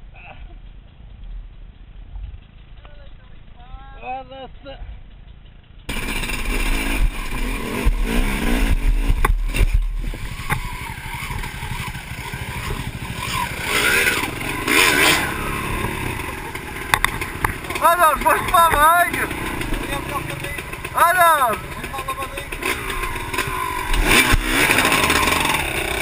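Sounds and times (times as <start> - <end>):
dirt bike engine revving: 5.9 - 26.0.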